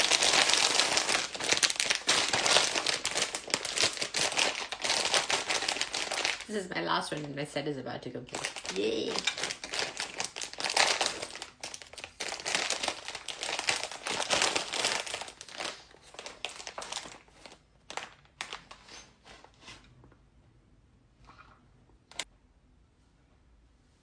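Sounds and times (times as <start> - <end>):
plastic packaging crinkling: 0.0 - 19.1.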